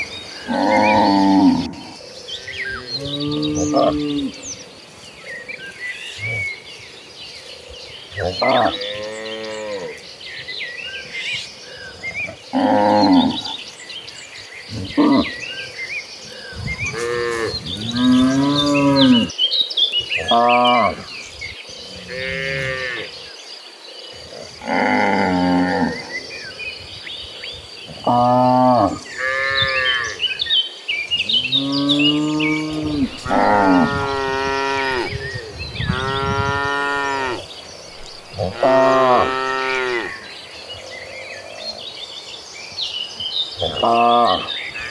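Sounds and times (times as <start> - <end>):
cows mooing: 0.5 - 1.9, 12.5 - 13.6, 16.6 - 19.3, 22.0 - 23.1, 24.6 - 26.1, 28.0 - 30.2, 31.2 - 40.3
cattle mooing: 31.4 - 40.2.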